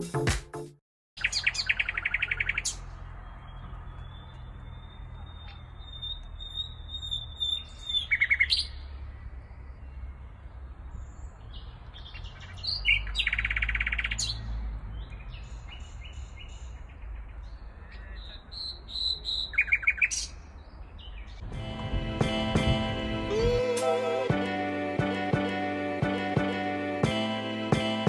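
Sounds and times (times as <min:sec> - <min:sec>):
songbirds singing: 0:01.2 - 0:21.5
low rumble: 0:21.4 - 0:23.7.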